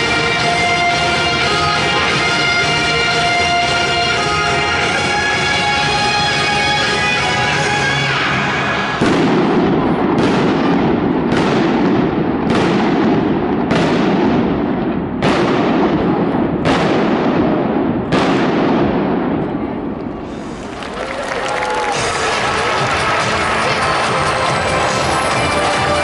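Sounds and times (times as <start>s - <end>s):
music: 0.0s - 9.4s, 21.6s - 26.0s
fireworks crackling: 0.0s - 26.0s
firework bursts: 8.8s - 26.0s.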